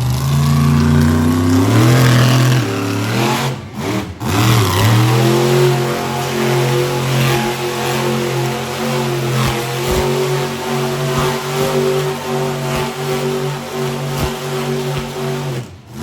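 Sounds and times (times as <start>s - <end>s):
low thuds: 0.0s - 16.0s
monster truck engine revving: 0.0s - 16.0s.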